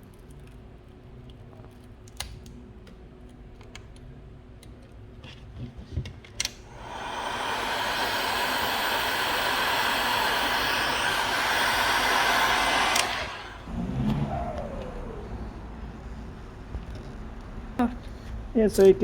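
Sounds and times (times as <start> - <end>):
heat gun blowing hot air: 6.7 - 15.5
heat gun switch click: 6.8 - 13.6.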